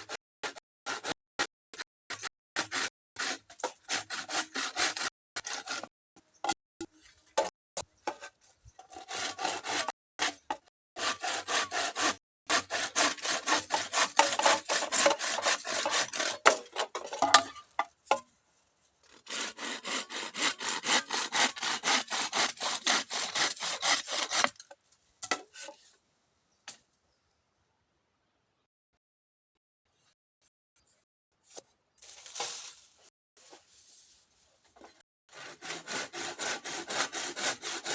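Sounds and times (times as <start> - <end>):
hand saw cutting bamboo: 0.0 - 1.2, 2.1 - 5.9, 8.1 - 17.1, 19.1 - 24.7, 35.3 - 37.9.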